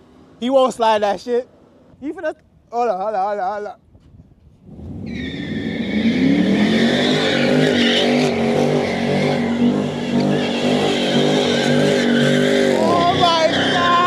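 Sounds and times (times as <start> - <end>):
car engine revving: 4.6 - 14.0
tyres squealing: 5.1 - 14.0.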